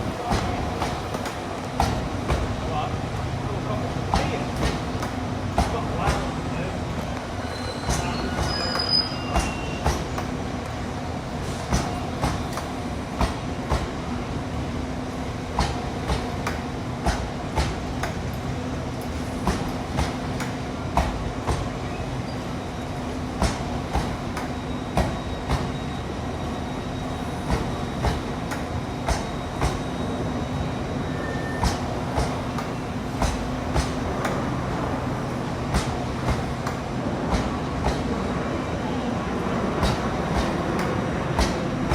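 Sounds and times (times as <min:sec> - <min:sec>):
train wheels clacking over joints: 0:07.5 - 0:10.4, 0:27.4 - 0:30.8, 0:31.4 - 0:34.6, 0:35.5 - 0:38.1, 0:39.8 - 0:41.9.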